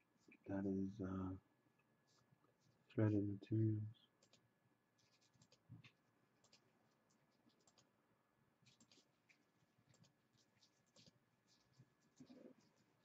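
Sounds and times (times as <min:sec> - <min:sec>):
light scratching: 0:08.6 - 0:13.0.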